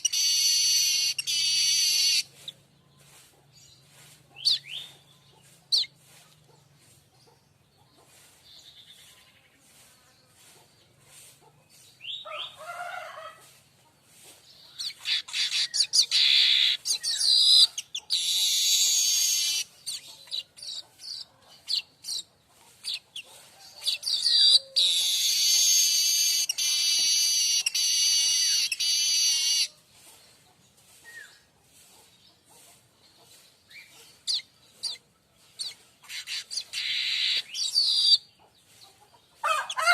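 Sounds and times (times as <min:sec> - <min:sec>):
bird chirping and trilling: 0:00.0 - 0:02.5, 0:04.4 - 0:05.1, 0:14.7 - 0:29.8, 0:33.7 - 0:38.4.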